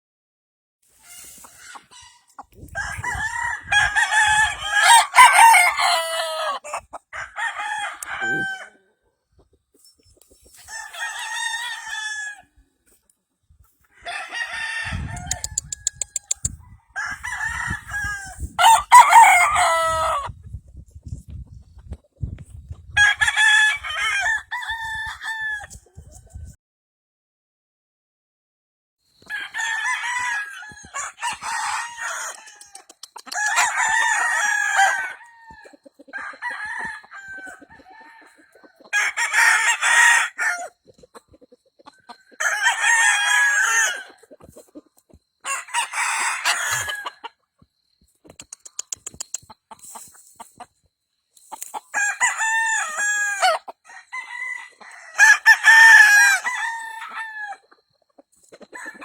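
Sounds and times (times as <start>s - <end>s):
roosters crowing: 1.0s - 8.9s, 10.6s - 12.6s, 13.9s - 20.3s, 23.0s - 25.8s, 29.2s - 40.8s, 42.0s - 44.3s, 45.4s - 47.4s, 51.8s - 57.7s, 58.6s - 59.0s.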